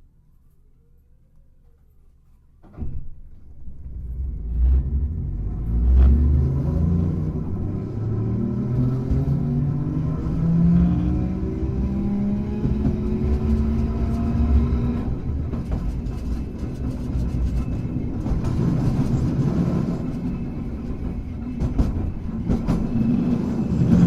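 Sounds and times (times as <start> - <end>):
tram wheels rumbling: 3.1 - 24.0
tram knock: 10.6 - 24.0.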